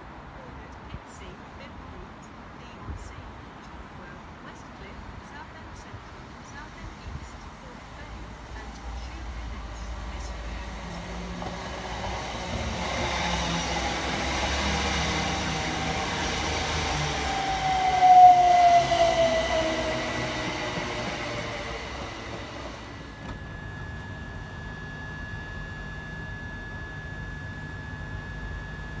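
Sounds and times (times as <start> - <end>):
train passing by: 0.0 - 24.6
whining tone falling in pitch: 9.6 - 29.0.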